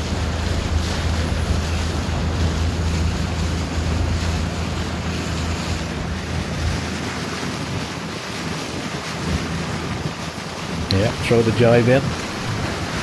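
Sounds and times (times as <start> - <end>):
low rumble: 0.0 - 8.1, 12.0 - 13.0
water rushing around boat: 0.0 - 13.0
wind buffeting microphone: 0.0 - 13.0.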